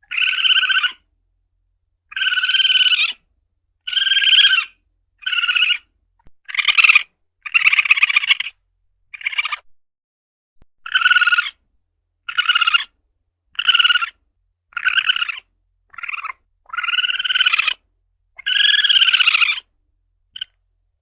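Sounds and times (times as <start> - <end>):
civet calling: 0.0 - 1.1, 2.1 - 3.2, 3.9 - 9.7, 10.8 - 11.6, 12.2 - 17.8, 18.4 - 19.7, 20.4 - 20.6.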